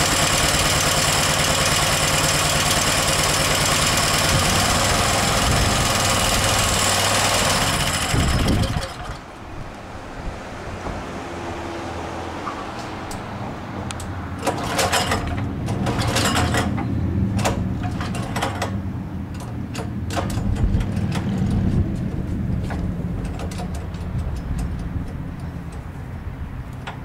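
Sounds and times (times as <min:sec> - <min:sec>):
small engine running: 0:00.0 - 0:09.3
clanks knocks and rattles: 0:13.8 - 0:26.0, 0:26.7 - 0:27.0.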